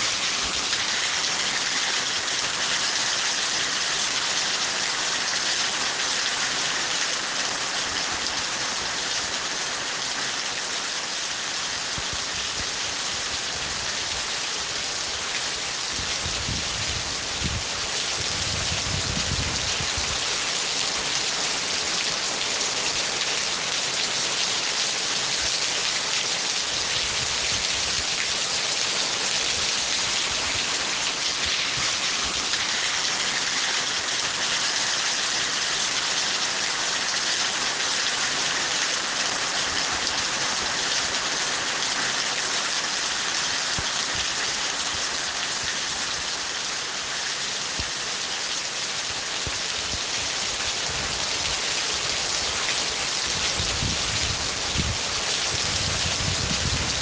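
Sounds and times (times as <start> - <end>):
dense rainfall: 0.0 - 57.0.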